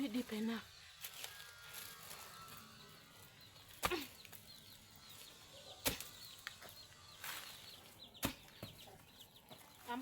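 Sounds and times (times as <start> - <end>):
faint bird chirping: 1.4 - 10.0.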